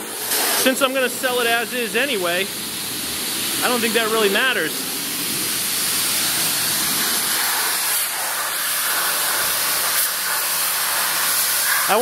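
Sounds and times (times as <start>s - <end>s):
water jet spraying metal: 0.0s - 12.0s.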